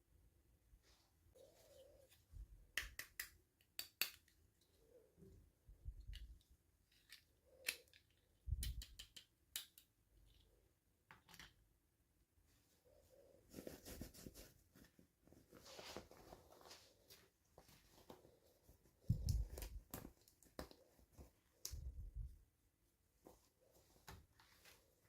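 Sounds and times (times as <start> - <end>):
plastic toy parts clicking: 2.8 - 4.4, 6.0 - 10.5.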